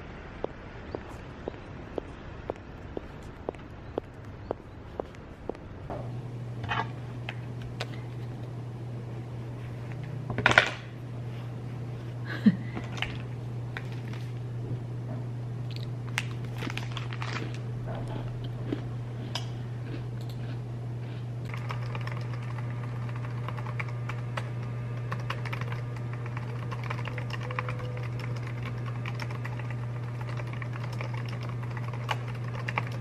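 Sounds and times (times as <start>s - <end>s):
steady low hum: 0.0s - 33.0s
typing on computer keyboard: 21.5s - 24.5s, 25.1s - 33.0s.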